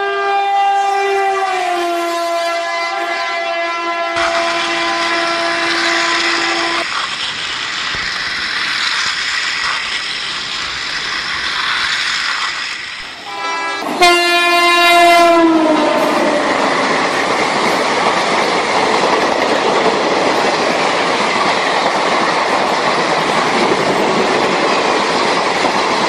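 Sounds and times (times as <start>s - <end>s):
toy train electronic horn: 0.0s - 6.9s, 13.2s - 16.4s
steady hissing rush: 4.2s - 13.9s, 15.8s - 26.0s.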